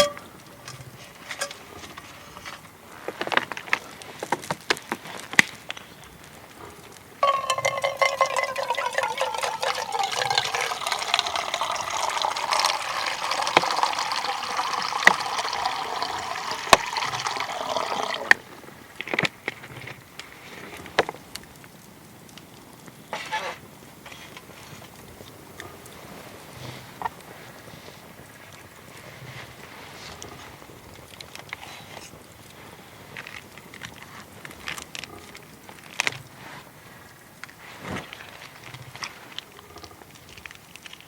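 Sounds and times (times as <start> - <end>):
handling clicks and knocks: 7.2 - 10.9
water pouring into a container: 7.2 - 18.5.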